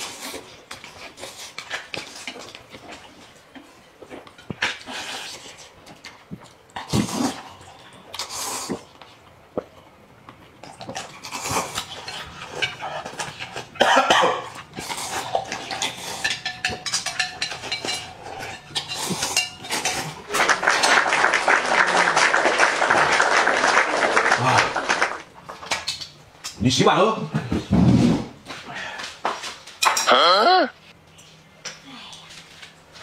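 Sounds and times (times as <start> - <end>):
people eating noisily: 10.6 - 26.1
chopsticks and bowls clattering: 10.9 - 21.0.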